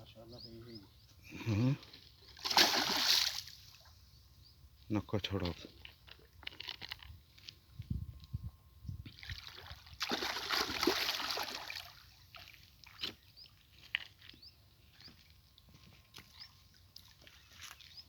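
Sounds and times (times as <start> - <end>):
water splashing and sloshing: 2.3 - 3.9, 9.0 - 15.3.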